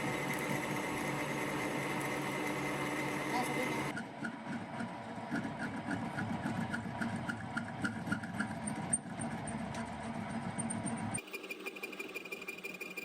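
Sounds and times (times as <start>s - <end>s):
machine high whine: 0.0s - 4.1s, 10.6s - 13.0s.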